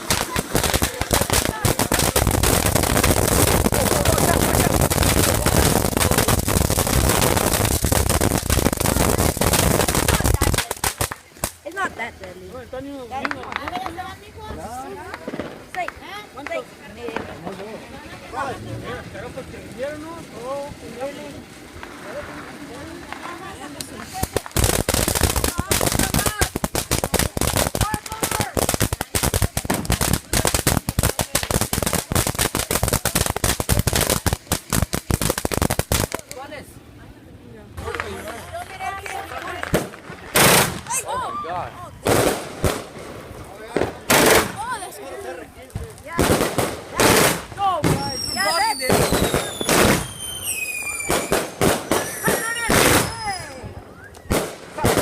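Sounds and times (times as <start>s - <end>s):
firecrackers going off: 0.0s - 37.0s, 37.7s - 55.0s.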